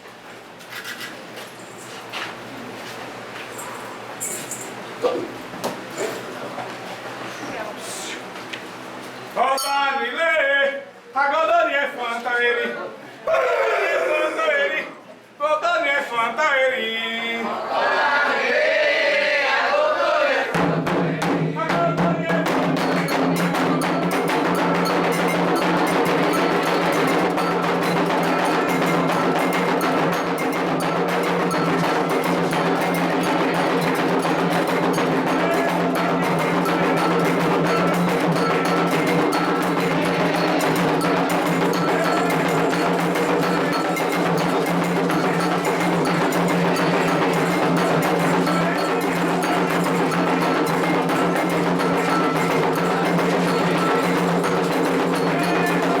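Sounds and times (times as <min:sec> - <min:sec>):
hand drums fast rhythm: 0:20.6 - 0:56.0
metal bell struck: 0:22.8 - 0:56.0.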